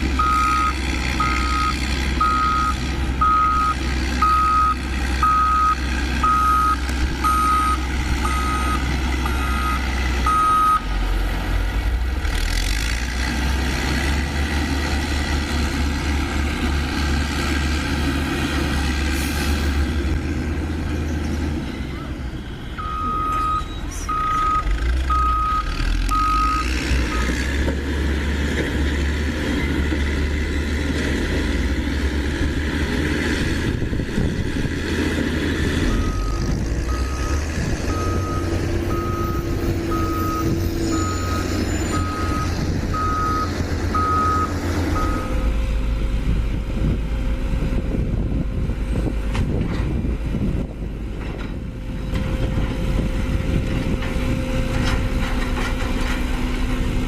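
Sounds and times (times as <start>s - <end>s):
heavy engine running: 0.0s - 57.0s
truck reversing alarm beeping: 0.2s - 10.9s, 21.8s - 27.4s, 35.7s - 45.6s.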